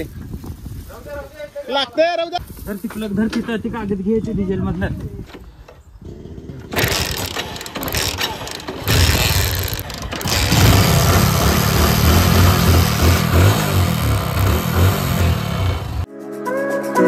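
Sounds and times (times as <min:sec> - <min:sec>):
motorcycle engine cranking: 0:06.6 - 0:16.1.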